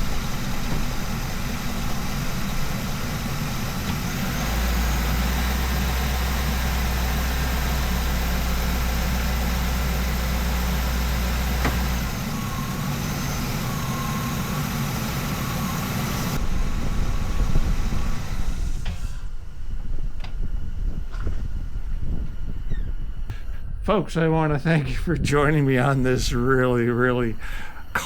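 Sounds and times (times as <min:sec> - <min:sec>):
engine idling: 0:00.0 - 0:23.8, 0:24.4 - 0:28.0
deeper hum: 0:00.0 - 0:28.0.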